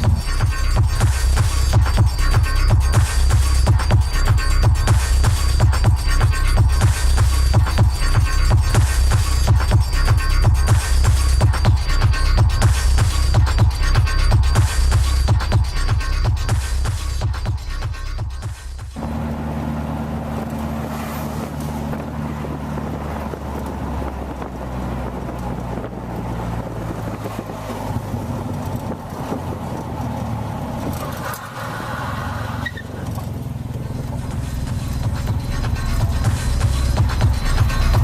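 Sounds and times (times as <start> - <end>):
motorcycle engine running: 0.0 - 38.0
road noise: 0.0 - 38.0.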